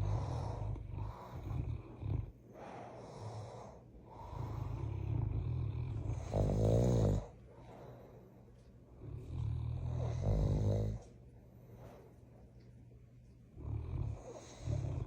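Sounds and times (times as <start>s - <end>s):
dog snoring: 0.0s - 8.3s, 9.0s - 11.1s, 13.5s - 15.0s.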